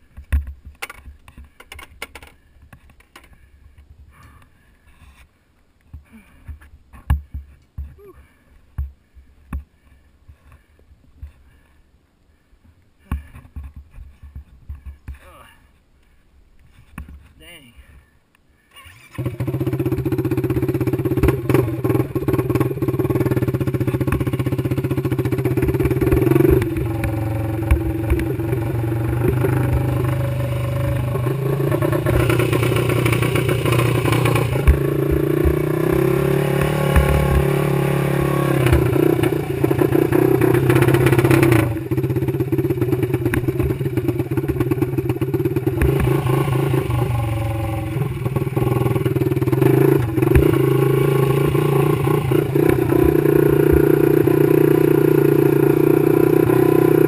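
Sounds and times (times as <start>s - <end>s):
quad engine revving: 19.1s - 57.0s.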